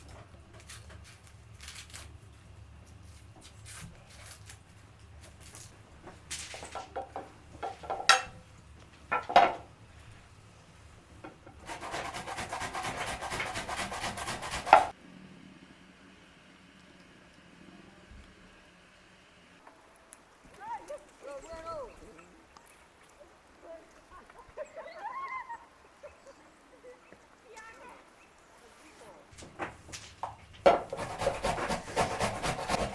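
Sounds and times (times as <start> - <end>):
rubbing and scraping: 11.5 - 14.9, 28.5 - 32.9
rapid rasping scrape: 11.6 - 14.9, 30.8 - 32.9.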